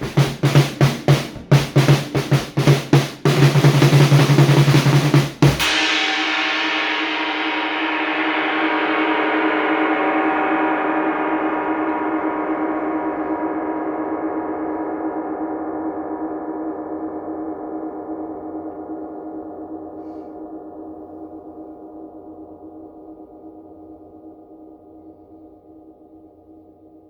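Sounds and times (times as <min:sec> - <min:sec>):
gong-like metal ringing: 0:05.6 - 0:20.0.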